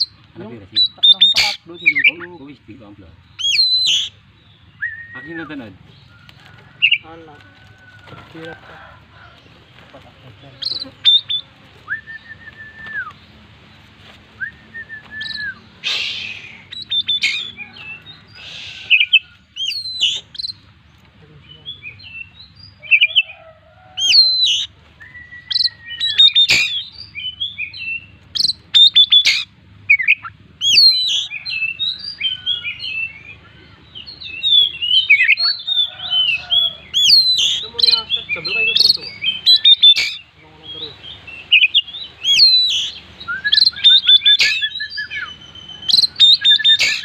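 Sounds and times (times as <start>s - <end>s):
songbird singing varied whistles: 4.7s - 5.6s, 10.7s - 13.2s, 14.4s - 17.6s, 24.1s - 33.4s, 37.0s - 40.2s, 41.4s - 47.0s.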